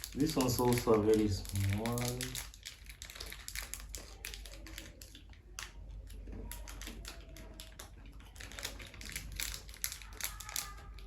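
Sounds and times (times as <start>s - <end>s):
chewing crunchy candies: 0.0s - 11.0s.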